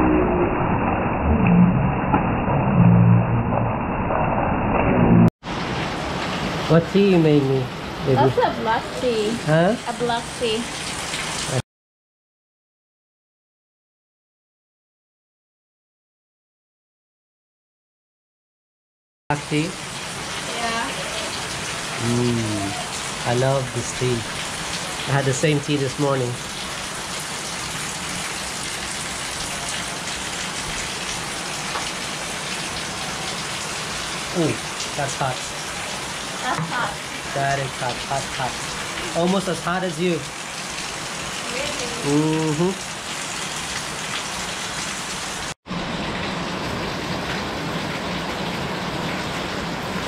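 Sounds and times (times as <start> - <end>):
rain pouring: 5.4 - 11.6, 19.3 - 50.0.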